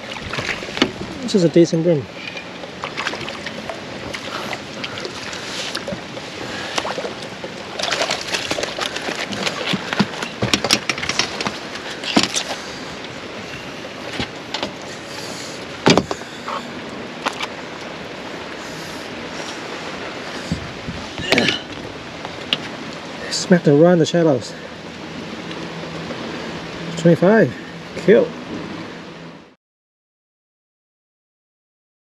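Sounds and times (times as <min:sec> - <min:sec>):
rain hiss: 0:00.0 - 0:07.8, 0:11.1 - 0:29.3
knocks in a boat: 0:00.2 - 0:01.2, 0:08.5 - 0:12.4, 0:15.8 - 0:16.2.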